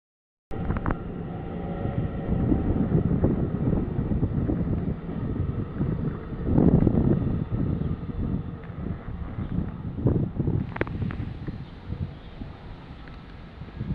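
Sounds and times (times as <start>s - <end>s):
freight train rumbling past: 0.6s - 13.9s.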